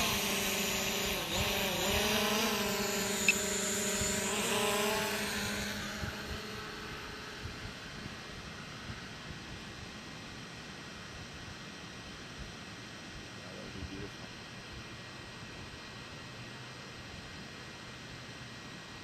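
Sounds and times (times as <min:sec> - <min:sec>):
drone propellers whining: 0:00.0 - 0:08.0.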